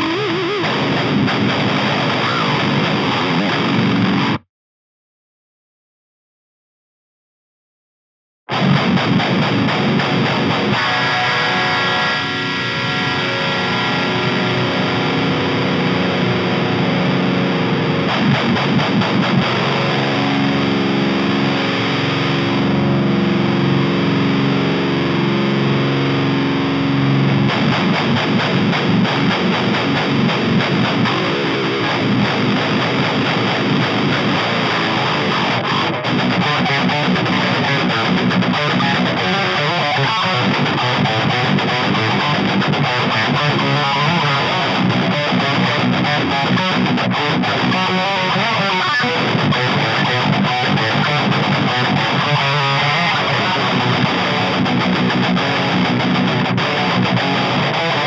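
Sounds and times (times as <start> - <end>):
distorted electric guitar metal riffs: 0.0 - 4.4, 8.5 - 58.0.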